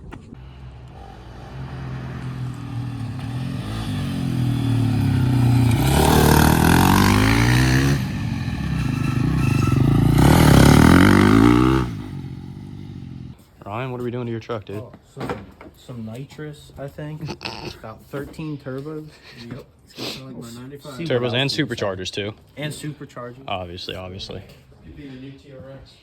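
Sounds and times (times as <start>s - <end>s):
dirt bike engine accelerating: 0.4s - 13.4s.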